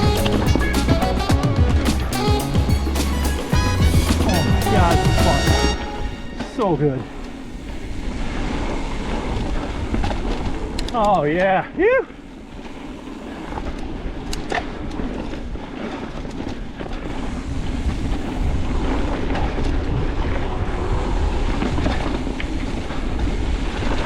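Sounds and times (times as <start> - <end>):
bike tyre noise on dirt: 0.0 - 24.0
wind on camera: 6.3 - 24.0.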